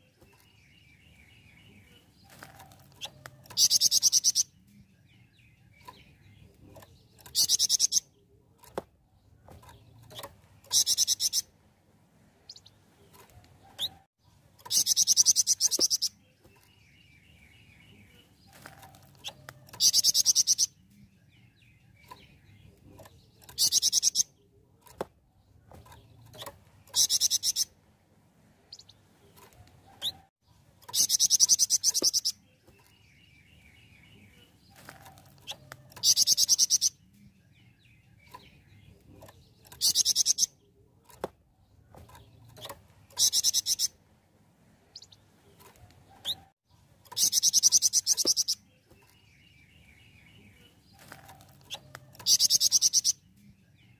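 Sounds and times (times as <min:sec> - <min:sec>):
bird singing high trills: 0:26.9 - 0:27.7, 0:30.9 - 0:34.4, 0:43.1 - 0:44.0, 0:47.1 - 0:50.7.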